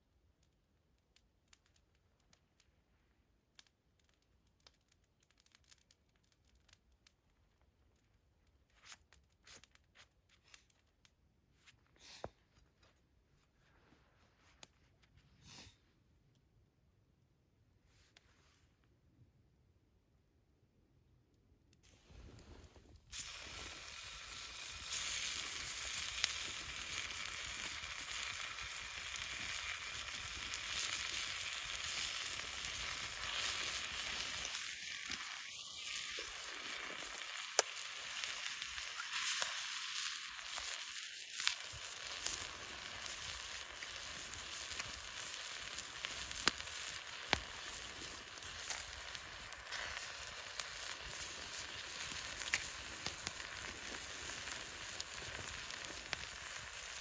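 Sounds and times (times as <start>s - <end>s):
sharp pops of frying: 22.3s - 57.0s
food sizzling in a frying pan: 22.4s - 57.0s.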